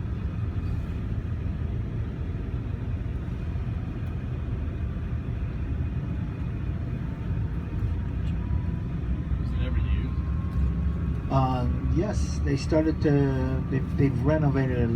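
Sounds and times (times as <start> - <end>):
vehicle engine and road noise: 0.0 - 14.9.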